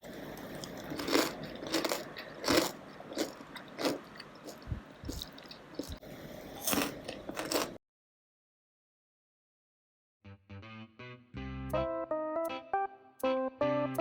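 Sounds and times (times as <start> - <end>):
crunchy chips being chewed: 0.1 - 6.0, 6.6 - 7.8.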